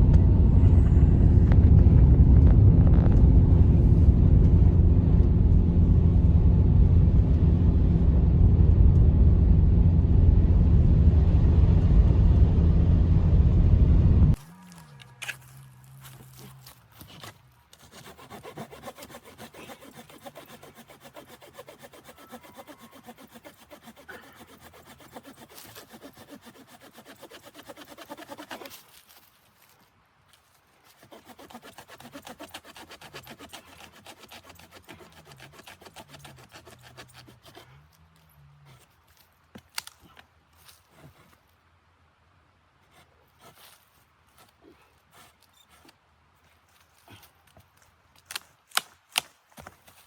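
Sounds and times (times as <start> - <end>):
hand saw cutting wood: 14.4 - 29.0, 30.9 - 38.9, 42.9 - 43.8.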